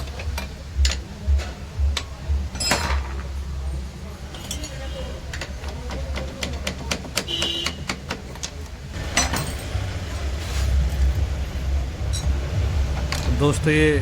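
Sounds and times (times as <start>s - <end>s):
metal clank: 0.0s - 3.4s, 4.3s - 9.8s
metal ringing: 2.0s - 3.3s, 4.3s - 6.3s
metal tools clinking: 2.5s - 3.4s, 4.3s - 6.7s, 8.3s - 9.9s, 12.1s - 12.4s.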